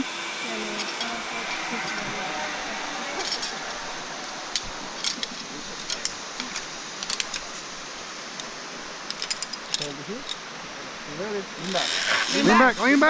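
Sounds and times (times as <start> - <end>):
steady hiss: 0.0 - 13.0
metal gear clinking: 9.1 - 10.4.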